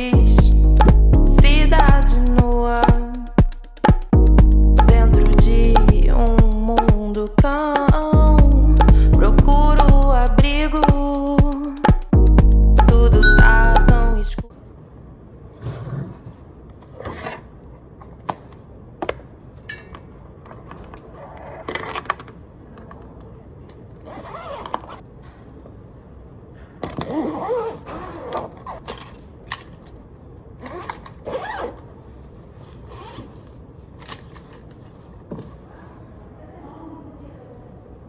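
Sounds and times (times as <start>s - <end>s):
zipper-like sound: 24.0s - 25.0s, 27.0s - 28.9s, 30.6s - 33.6s.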